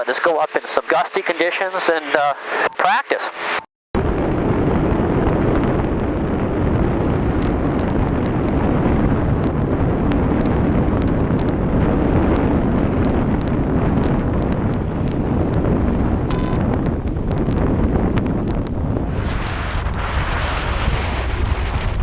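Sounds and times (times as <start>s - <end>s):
wind buffeting microphone: 4.0s - 22.0s
faint ticks: 7.3s - 8.6s, 9.4s - 11.6s, 12.3s - 15.7s, 16.3s - 22.0s.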